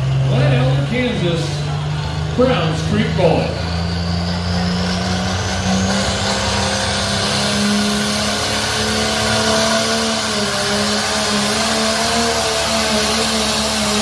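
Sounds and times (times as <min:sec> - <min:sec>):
truck engine running at high revs: 0:00.0 - 0:14.0.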